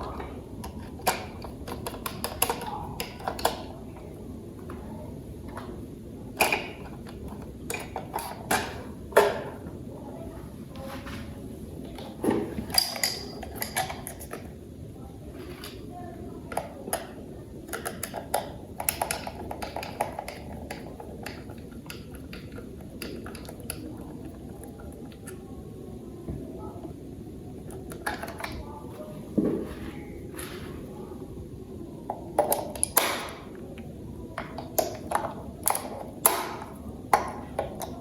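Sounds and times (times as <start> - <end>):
plastic toy parts clicking: 0.1 - 3.7, 6.3 - 9.4, 12.7 - 14.5, 16.5 - 25.4, 27.6 - 28.6, 32.1 - 33.6, 34.4 - 38.0.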